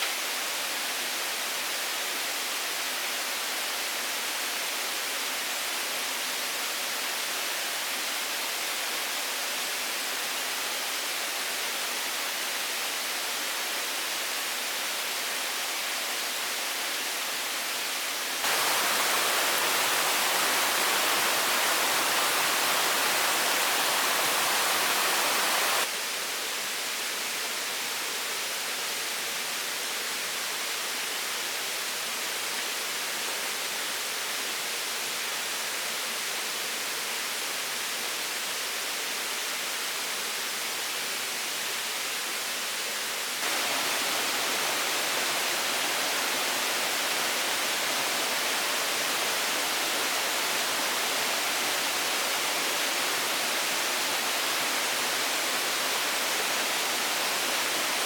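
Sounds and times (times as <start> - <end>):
steady hiss: 6.6 - 26.3, 43.0 - 58.0.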